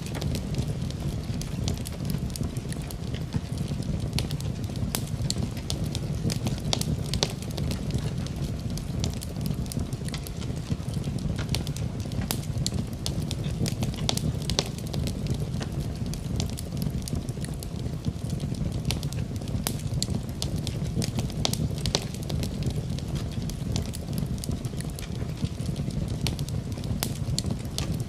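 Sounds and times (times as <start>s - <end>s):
flames hissing: 0.0s - 28.0s
wood fire crackling and popping: 0.0s - 28.0s.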